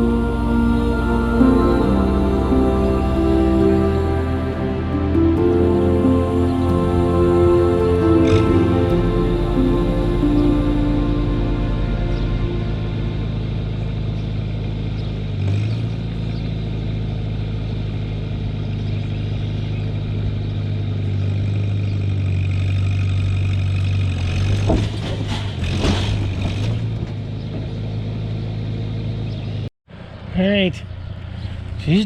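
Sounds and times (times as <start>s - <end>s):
vehicle engine running under load: 12.2s - 32.0s.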